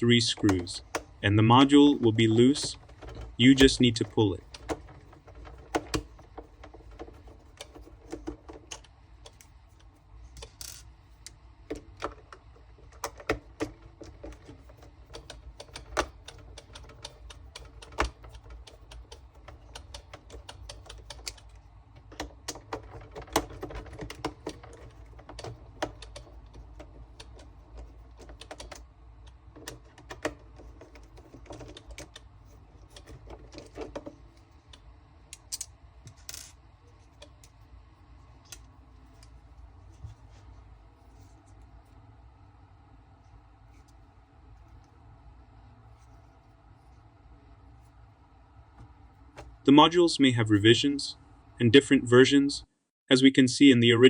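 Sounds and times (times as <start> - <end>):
hard plastic parts clicking: 2.0 - 37.6.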